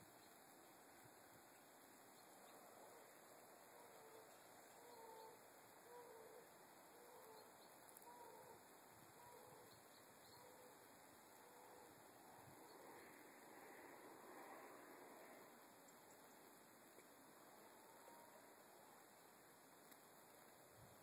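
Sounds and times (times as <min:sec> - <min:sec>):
background hiss: 0:00.0 - 0:21.0
faint bird call: 0:02.2 - 0:16.4.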